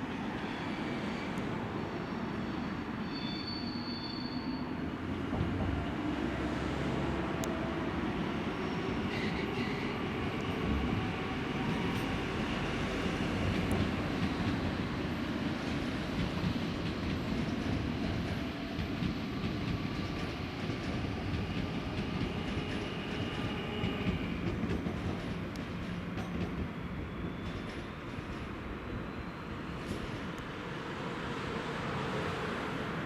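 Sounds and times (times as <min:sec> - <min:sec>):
faint wheel squeals: 0:01.9 - 0:04.8
train rolling rumble: 0:05.0 - 0:33.0.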